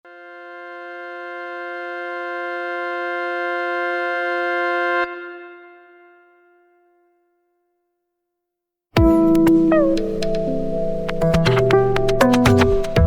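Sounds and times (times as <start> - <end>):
sustained organ-like chord: 0.1 - 6.4, 9.0 - 13.0.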